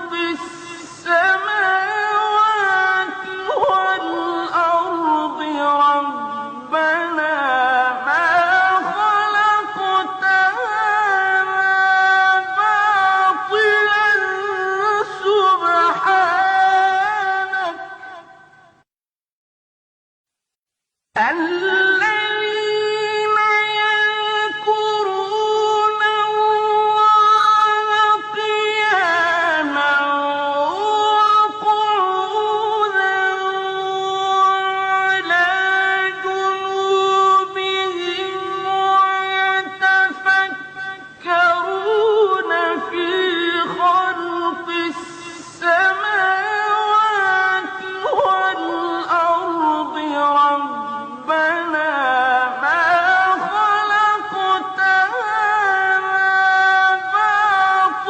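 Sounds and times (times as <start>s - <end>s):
melodic recitation voice: 0.0s - 18.8s, 21.2s - 58.0s.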